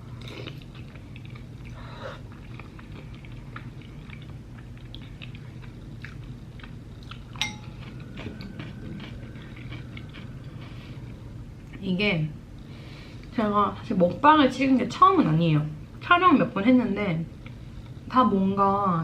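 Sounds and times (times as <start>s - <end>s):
person chewing: 0.1s - 11.7s.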